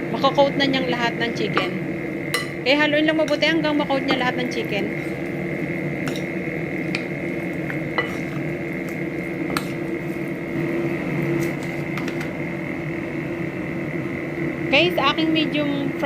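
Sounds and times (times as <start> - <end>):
faint steady hum: 0.0 - 16.0
wet mixing in a bowl: 3.3 - 12.2.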